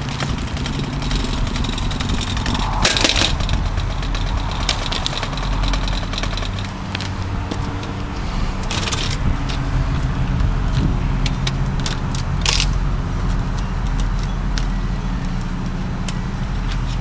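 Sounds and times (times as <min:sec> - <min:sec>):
fan frame clicks and rattles: 0:00.0 - 0:03.3, 0:04.0 - 0:17.0
box fan motor hum: 0:00.0 - 0:17.0
brief scraping noise: 0:01.2 - 0:06.8.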